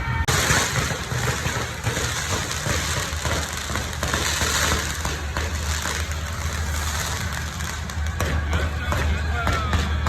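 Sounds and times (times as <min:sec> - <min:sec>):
firecrackers crackling: 0:00.0 - 0:10.0.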